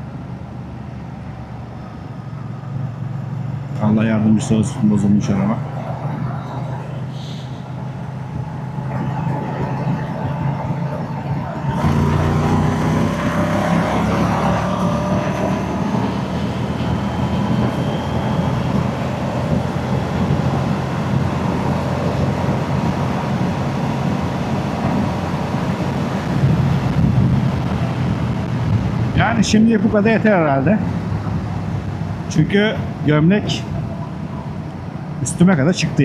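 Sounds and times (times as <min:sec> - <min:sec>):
motorcycle engine revving: 0:07.8 - 0:29.0.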